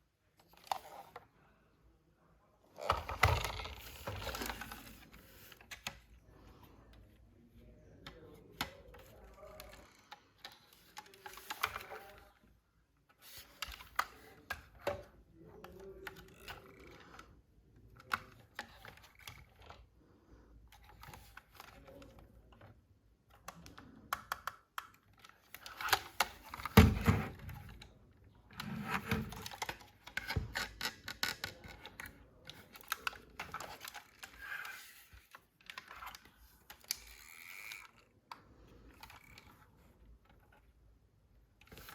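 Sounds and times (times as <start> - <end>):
plastic toy parts clicking: 8.0 - 12.4, 13.2 - 17.3, 28.9 - 40.5.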